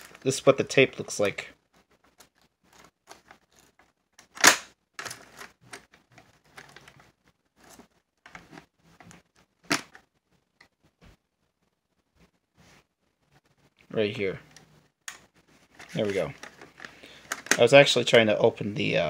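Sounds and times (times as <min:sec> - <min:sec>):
loud plastic snap: 0:04.2 - 0:04.8
plastic cassette clicks and knocks: 0:16.4 - 0:17.6.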